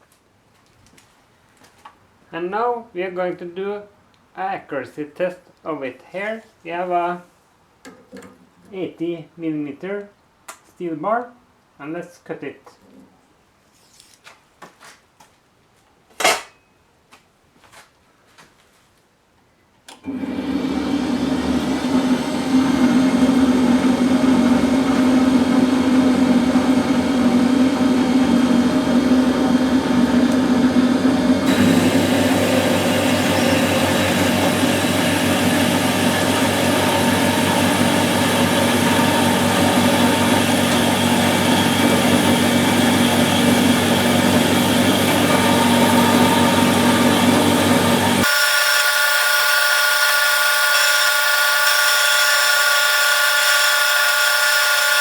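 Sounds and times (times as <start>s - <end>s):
low motor hum: 23.3s - 55.0s
bandsaw cutting steel bar: 31.4s - 55.0s.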